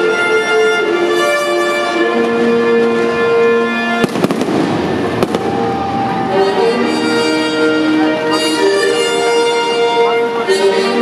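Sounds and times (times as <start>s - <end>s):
orchestral music with strings: 0.0s - 11.0s
fireworks crackle: 4.0s - 6.1s
fireworks bangs: 4.0s - 6.5s.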